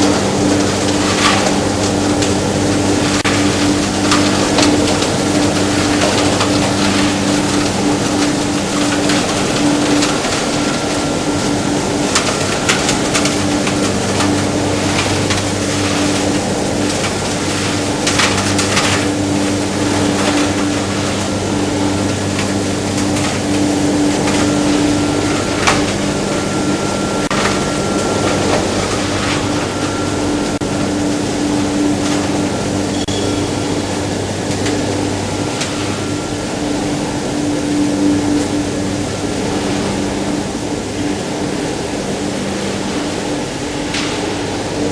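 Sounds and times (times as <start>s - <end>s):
machinery clicks and rattles: 0.0s - 36.1s
motor hum: 0.0s - 44.9s.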